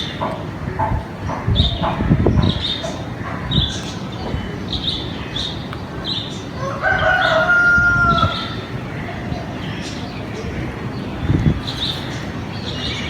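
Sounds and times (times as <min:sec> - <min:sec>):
small birds chirping: 0:00.0 - 0:13.0
rooster crowing: 0:06.6 - 0:08.6.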